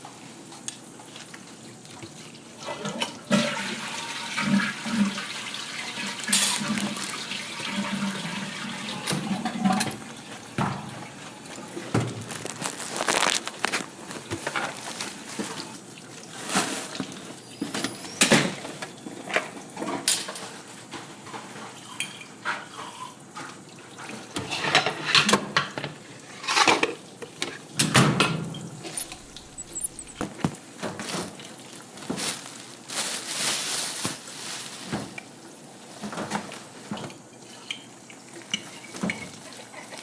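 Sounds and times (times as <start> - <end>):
dishes clinking and clattering: 6.0 - 11.6.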